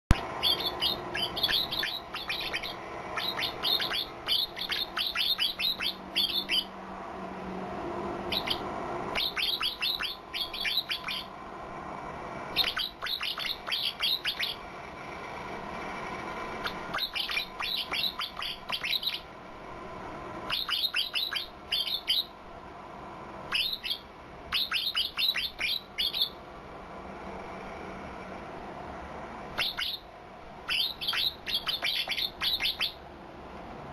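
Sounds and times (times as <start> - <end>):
songbird high twittering: 0.1 - 6.7, 8.3 - 11.3, 12.6 - 14.6, 16.6 - 19.3, 20.5 - 22.3, 23.5 - 26.4, 29.6 - 30.0, 30.7 - 33.0.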